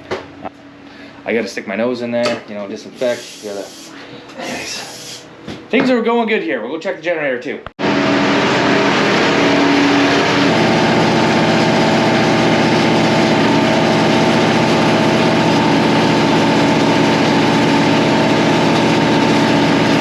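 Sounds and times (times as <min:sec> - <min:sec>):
generator engine running: 0:02.8 - 0:05.4, 0:07.8 - 0:20.0.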